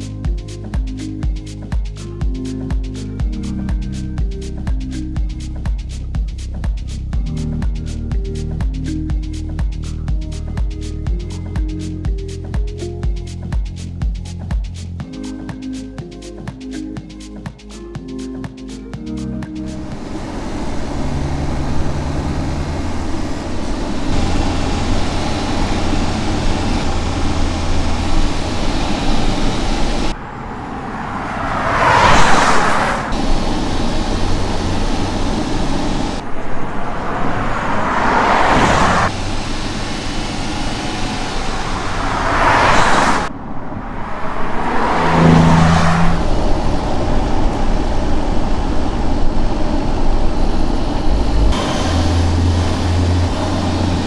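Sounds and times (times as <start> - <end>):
road and engine noise: 0.0 - 54.0
cars driving past: 19.6 - 54.0.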